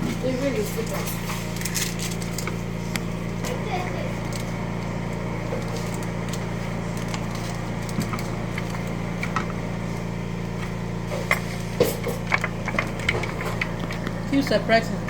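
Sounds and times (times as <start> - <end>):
low machine hum: 0.0 - 15.0
handling knocks and clicks: 11.3 - 14.2.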